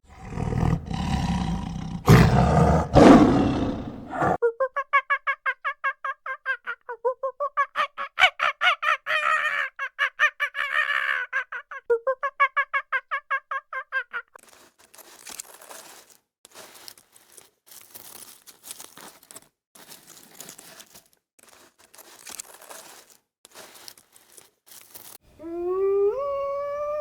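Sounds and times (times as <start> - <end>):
faint rustling and crunching: 14.4 - 25.3.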